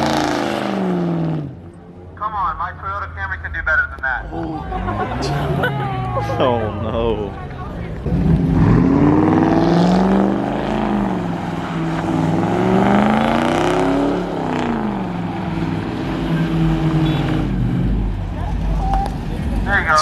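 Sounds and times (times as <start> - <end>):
car engine revving hard: 0.0 - 1.6, 8.0 - 18.4.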